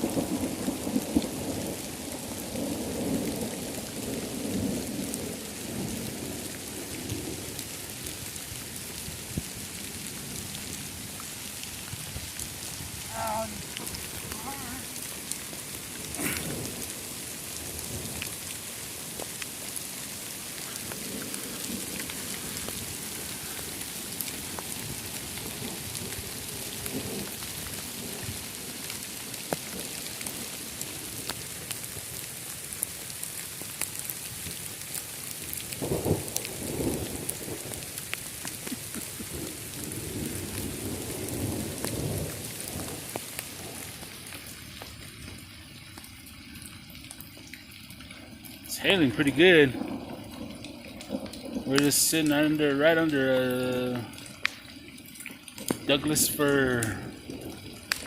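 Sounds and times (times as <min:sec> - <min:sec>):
thunder rumbling: 0:00.0 - 0:28.8, 0:35.7 - 0:44.2, 0:48.7 - 0:53.0
hailstones ticking: 0:00.0 - 0:58.0
heavy rain through trees: 0:00.0 - 0:58.0.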